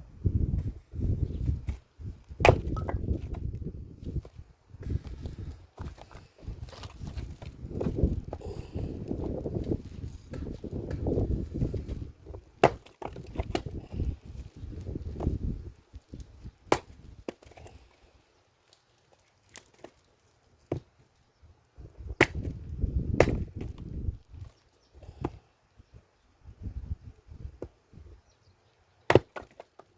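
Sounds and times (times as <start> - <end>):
axe chopping wood: 2.4 - 3.4, 12.6 - 13.8, 16.6 - 17.6, 22.1 - 23.9, 29.1 - 29.8.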